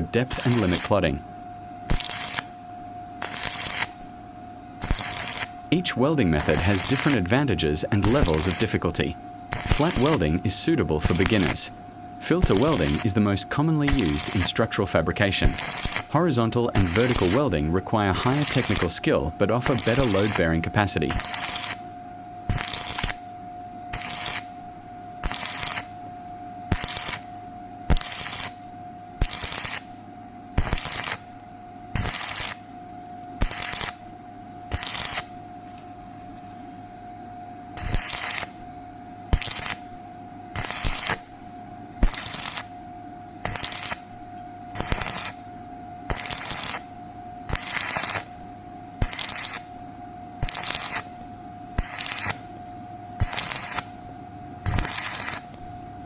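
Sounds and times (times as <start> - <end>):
arc welding crackling: 0.0 - 1.2, 1.8 - 4.1, 4.8 - 21.9, 22.5 - 23.3, 23.9 - 24.6, 25.2 - 25.9, 26.7 - 32.7, 33.4 - 34.1, 34.7 - 35.4, 37.8 - 38.6, 39.3 - 41.4, 42.0 - 42.8, 43.4 - 48.4, 49.0 - 49.8, 50.4 - 52.5, 53.2 - 54.0, 54.6 - 55.7
steady electrical whine: 0.0 - 56.0.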